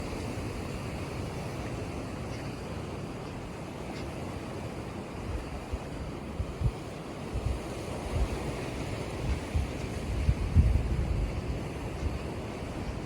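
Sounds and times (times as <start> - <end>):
sea surf washing: 0.0 - 13.0
wind buffeting microphone: 5.2 - 13.0.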